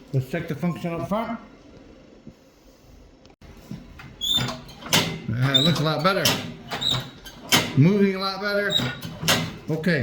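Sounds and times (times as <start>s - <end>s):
cable linkage squeaking: 4.0s - 7.8s, 8.6s - 9.6s.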